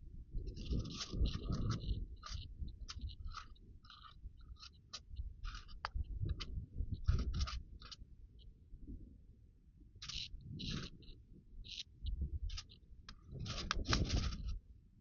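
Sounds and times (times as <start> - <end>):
pages rustling and crinkling: 13.4 - 14.5.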